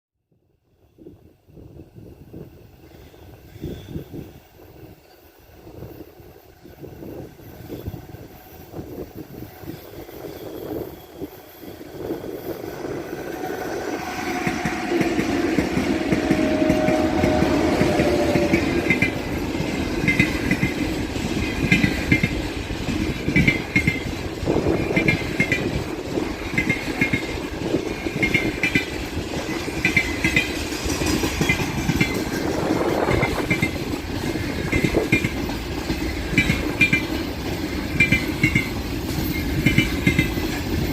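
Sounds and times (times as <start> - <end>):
electric locomotive approaching: 0.7 - 40.9
brief locomotive whine: 0.8 - 22.2
wheels clacking over rail joints: 14.3 - 40.9.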